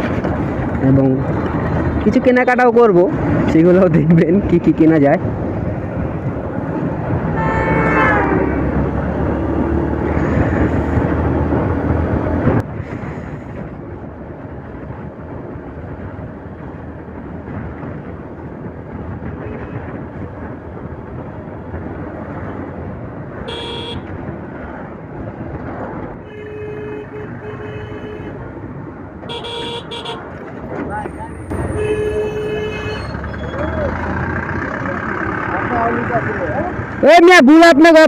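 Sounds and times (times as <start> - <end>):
motorcycle road and wind noise: 0.0 - 38.0
vehicle passing: 4.4 - 12.6, 28.3 - 37.4
vehicle horns honking: 7.2 - 8.7, 23.4 - 24.1, 26.2 - 28.4, 29.3 - 30.3, 31.5 - 33.3.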